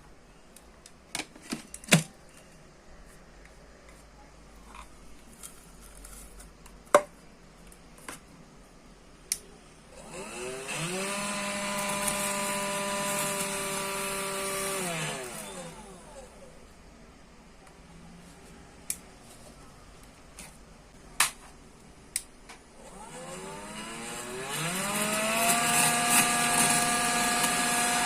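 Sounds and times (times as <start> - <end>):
vacuum cleaner motor whine: 9.9 - 16.5, 22.8 - 28.0.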